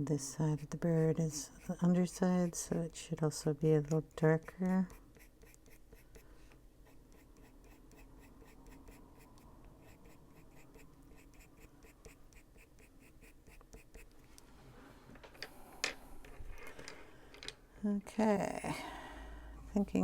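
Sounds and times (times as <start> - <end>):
coloured pencil scratching on paper: 0.4 - 2.7, 4.2 - 14.2.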